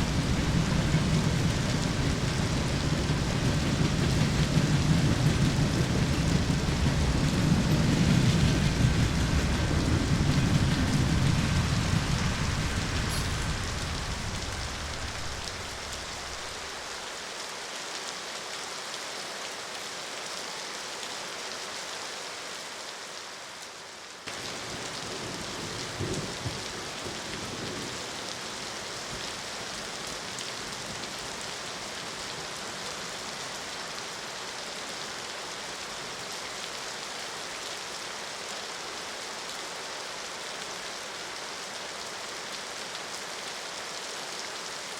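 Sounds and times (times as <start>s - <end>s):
deep low rumble: 0.0s - 16.7s
steady rain falling: 0.0s - 44.9s.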